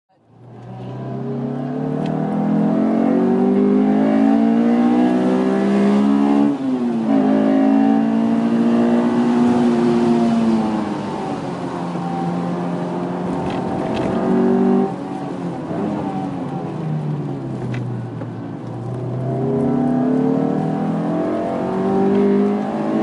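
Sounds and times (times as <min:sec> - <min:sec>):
car engine accelerating hard: 0:00.3 - 0:23.0.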